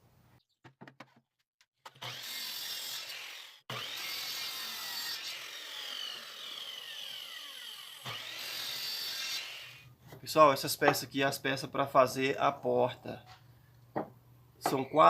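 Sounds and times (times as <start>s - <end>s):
power saw cutting wood: 1.9s - 9.9s.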